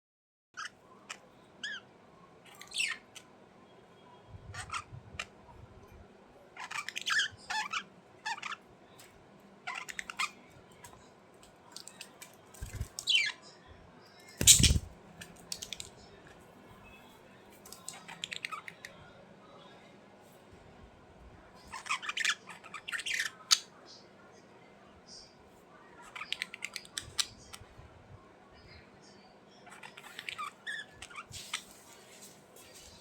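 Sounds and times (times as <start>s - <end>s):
budgerigars chirping and squawking: 6.6s - 8.6s, 9.7s - 10.4s, 14.4s - 14.9s, 21.7s - 23.7s, 29.6s - 31.8s.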